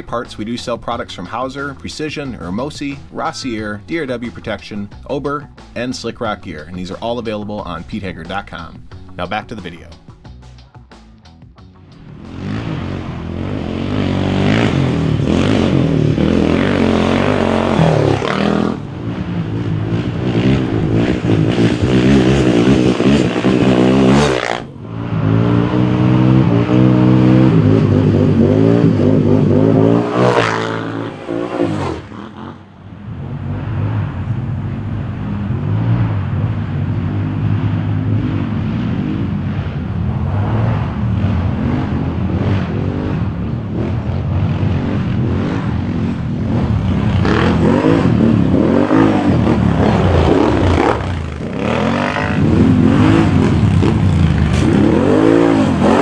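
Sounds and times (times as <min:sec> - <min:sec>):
quad engine revving: 0:12.0 - 0:32.7, 0:40.4 - 0:56.0.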